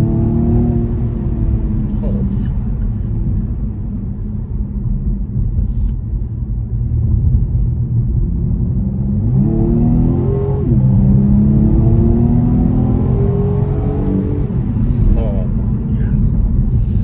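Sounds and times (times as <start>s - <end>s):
car engine revving: 8.4s - 17.0s.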